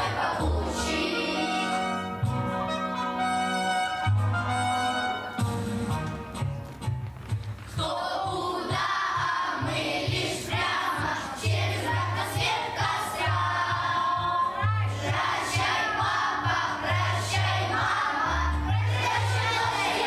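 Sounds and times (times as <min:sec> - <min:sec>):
children singing in chorus: 0:00.0 - 0:01.9, 0:07.8 - 0:20.0.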